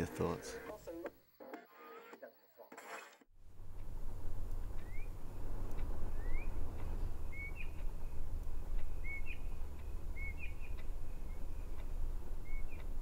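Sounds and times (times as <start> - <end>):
low hum: 3.4 - 13.0
faint ticks: 3.7 - 13.0
bird chirping: 4.5 - 13.0.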